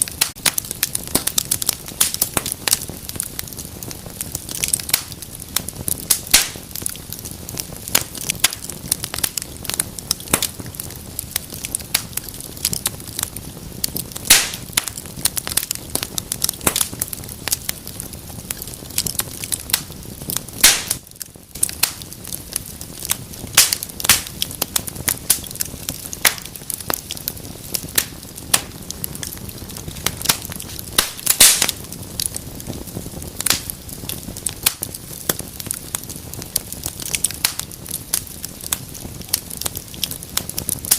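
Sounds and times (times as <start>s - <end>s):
fire hiss: 0.0s - 40.9s
wood fire crackling and popping: 0.0s - 40.9s.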